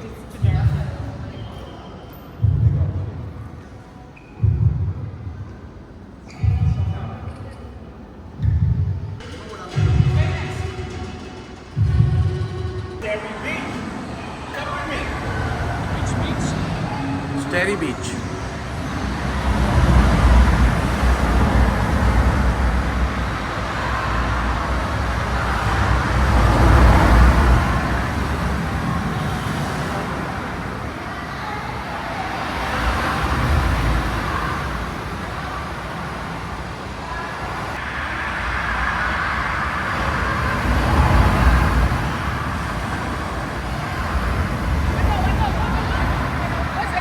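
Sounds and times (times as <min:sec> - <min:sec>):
ocean waves rushing in: 0:13.4 - 0:47.0.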